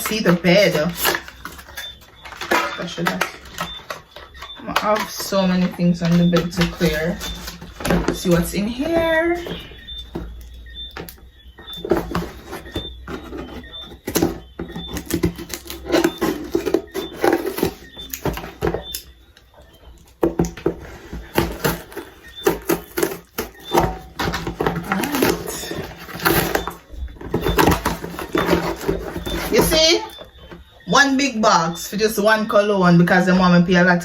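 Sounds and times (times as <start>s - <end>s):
package rustling and tearing: 0.0s - 10.3s, 11.8s - 18.9s, 20.0s - 29.8s.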